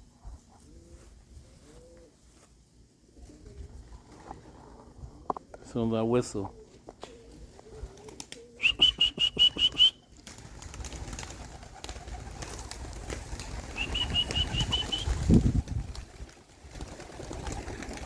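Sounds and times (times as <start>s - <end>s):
trilling whistle: 8.6s - 10.0s, 13.8s - 15.2s.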